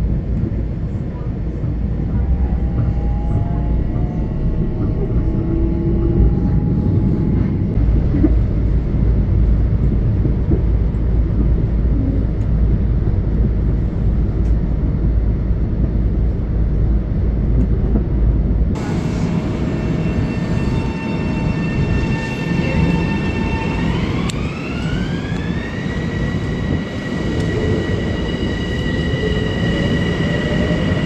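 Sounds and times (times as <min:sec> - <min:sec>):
train high steady whine: 0:00.0 - 0:31.0
train rumbling past: 0:00.0 - 0:31.0.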